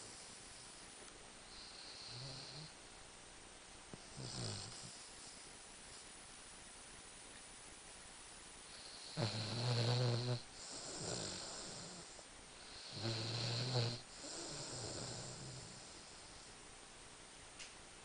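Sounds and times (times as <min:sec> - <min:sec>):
dog snoring: 0:00.0 - 0:02.8, 0:04.0 - 0:06.0, 0:08.6 - 0:16.5.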